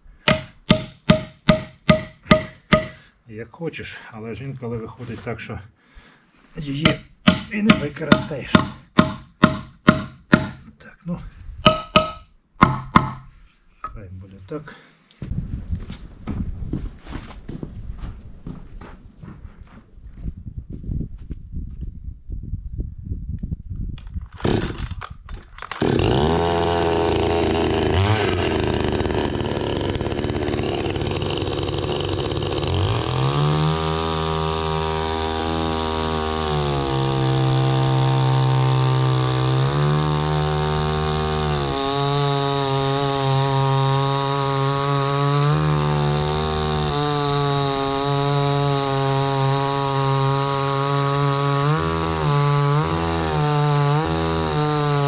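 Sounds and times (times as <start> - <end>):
chainsaw cutting log: 0.0 - 3.1, 6.6 - 10.7, 11.7 - 13.4, 24.3 - 55.0.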